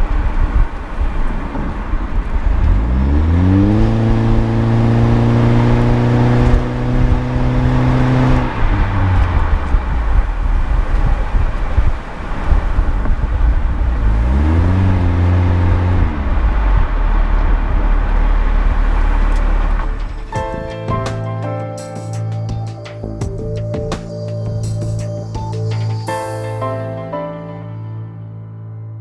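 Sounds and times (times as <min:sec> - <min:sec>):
road and wind noise: 0:00.0 - 0:21.2
car engine accelerating: 0:00.2 - 0:20.3.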